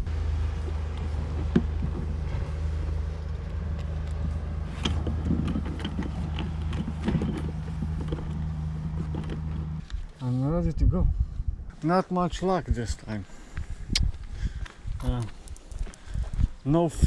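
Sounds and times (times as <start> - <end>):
engine humming: 0.0 - 10.5.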